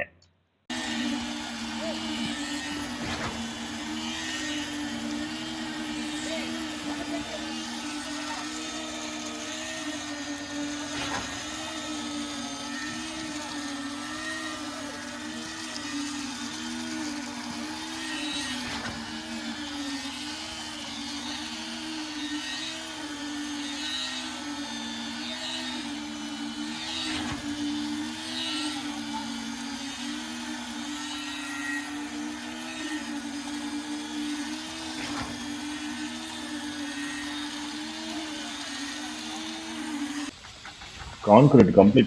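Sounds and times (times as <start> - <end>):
machine motor humming: 0.7 - 42.0.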